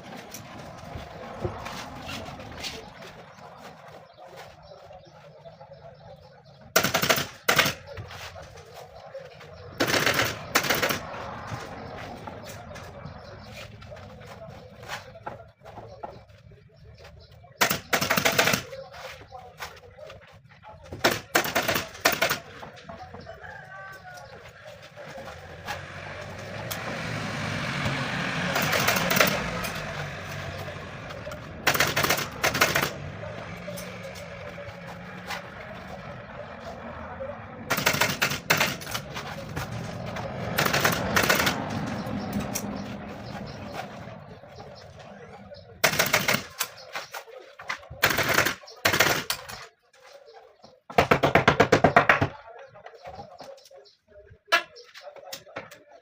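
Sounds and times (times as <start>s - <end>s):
rapid sharp clicks: 6.8s - 7.8s, 9.8s - 11.2s, 17.6s - 18.8s, 28.5s - 34.2s, 37.7s - 39.1s, 40.4s - 42.7s, 45.8s - 46.8s.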